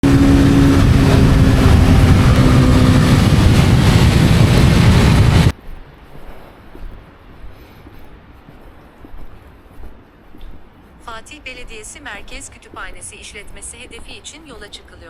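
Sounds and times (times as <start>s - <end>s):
motorcycle engine: 0.0s - 5.5s
wind rushing over microphone: 0.0s - 5.6s.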